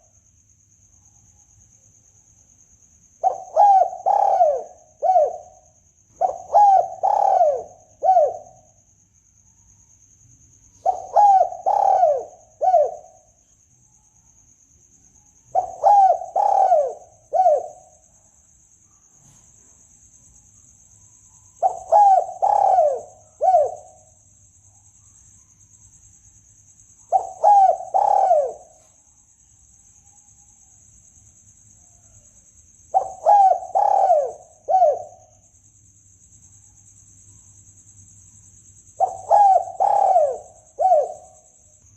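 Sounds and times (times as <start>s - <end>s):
faint high-pitched whine: 0.0s - 41.9s
dove cooing: 3.2s - 8.7s, 10.8s - 13.3s, 15.5s - 17.9s, 21.6s - 24.1s, 27.1s - 28.9s, 32.9s - 35.4s, 39.0s - 41.4s.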